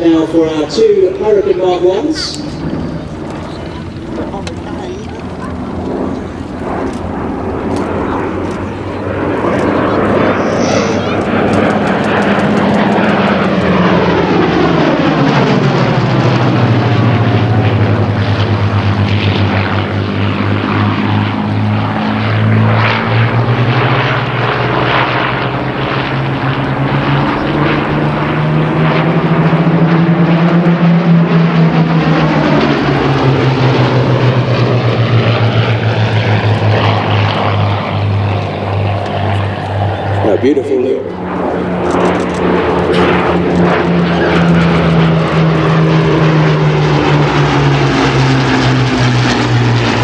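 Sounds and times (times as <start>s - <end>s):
propeller aircraft engines passing: 0.0s - 50.0s.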